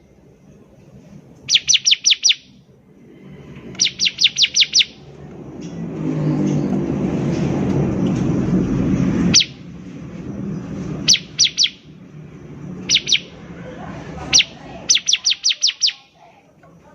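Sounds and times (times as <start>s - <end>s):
bird chirping: 1.4s - 2.7s, 3.7s - 5.1s, 9.1s - 9.7s, 10.3s - 13.6s, 14.2s - 16.3s
loud low rumble: 2.7s - 15.0s.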